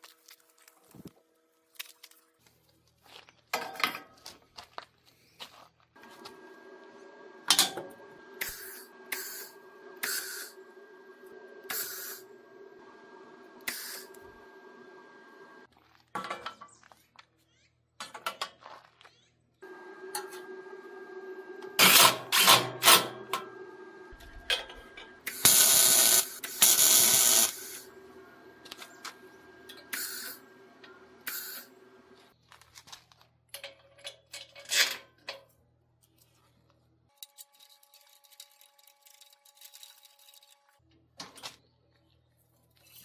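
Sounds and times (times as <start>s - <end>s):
power tool running: 6.0s - 15.7s, 19.6s - 32.3s.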